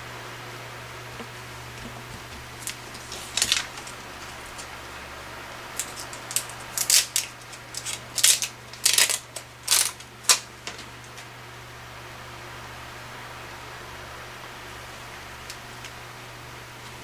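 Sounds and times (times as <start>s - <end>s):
paper rustling and clicking: 1.2s - 4.8s, 5.8s - 11.3s.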